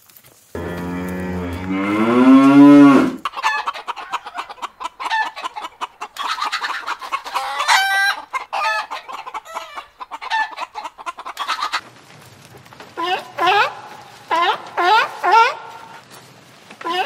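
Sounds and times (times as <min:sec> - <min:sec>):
chicken long loud call: 0:00.6 - 0:05.4, 0:13.0 - 0:16.0
chickens clucking: 0:01.9 - 0:11.8, 0:12.9 - 0:16.1, 0:16.8 - 0:17.0.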